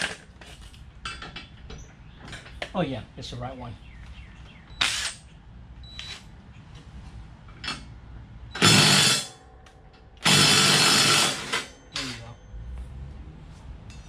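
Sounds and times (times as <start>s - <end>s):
power tool running: 8.6s - 9.3s, 10.2s - 12.1s.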